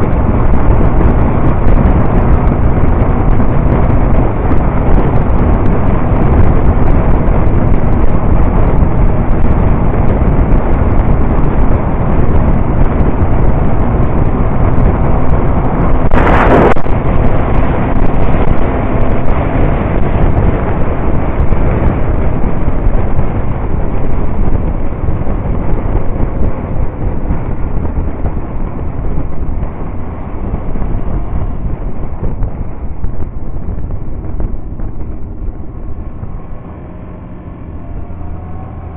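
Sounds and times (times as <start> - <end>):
motorcycle engine running: 0.0 - 38.9
wind rush on microphone: 0.0 - 38.9.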